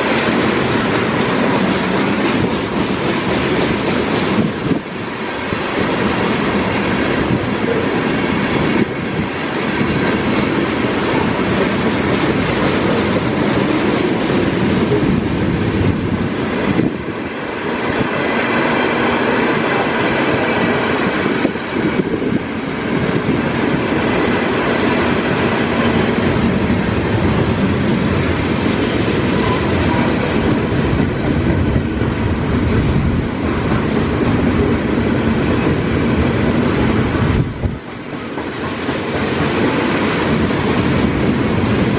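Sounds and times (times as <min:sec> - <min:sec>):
train cars rolling past: 0:00.0 - 0:41.9
wind buffeting microphone: 0:00.0 - 0:41.9
wheels clicking over rail joints: 0:37.6 - 0:41.9.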